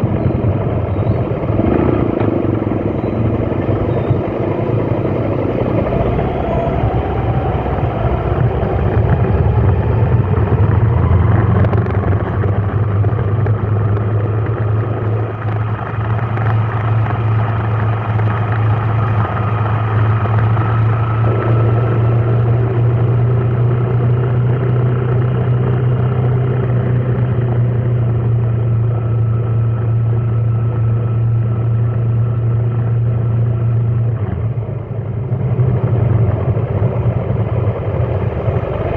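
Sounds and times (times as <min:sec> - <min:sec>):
vehicle engine whining: 0:00.0 - 0:38.9.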